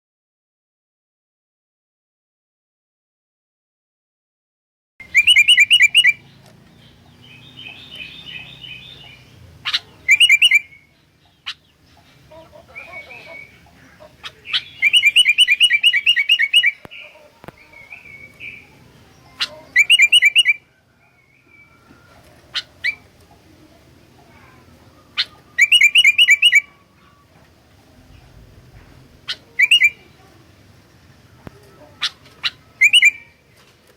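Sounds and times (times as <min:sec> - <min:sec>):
bird chattering song: 0:05.0 - 0:21.9, 0:22.5 - 0:23.5, 0:24.1 - 0:27.4, 0:28.0 - 0:30.4, 0:31.9 - 0:33.4
soft bird calls: 0:05.0 - 0:33.9.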